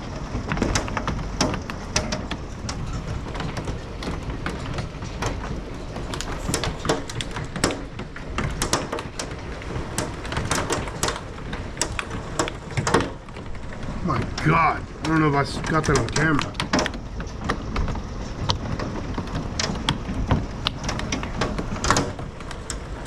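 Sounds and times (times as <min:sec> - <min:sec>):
hailstones striking window glass: 0:00.4 - 0:23.0
storm hiss: 0:05.6 - 0:16.7.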